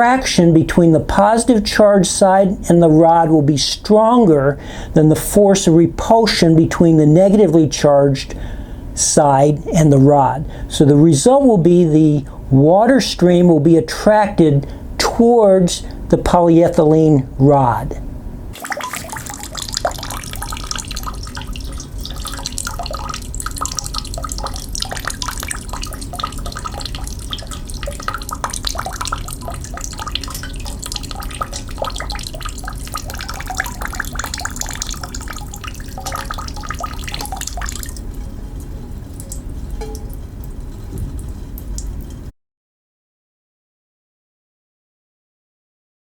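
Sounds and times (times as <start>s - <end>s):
water splashing into basin: 18.6s - 42.1s.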